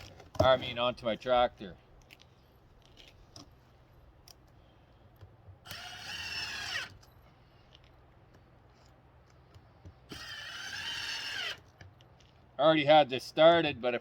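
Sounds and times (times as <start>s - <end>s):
cordless drill driving screw: 5.6s - 7.1s, 10.1s - 11.7s.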